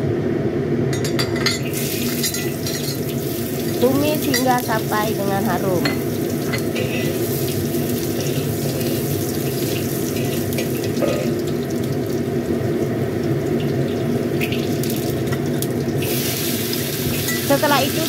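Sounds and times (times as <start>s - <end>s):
ginger and garlic sizzling in oil: 1.6s - 18.0s
metal spatula scraping: 6.5s - 7.3s.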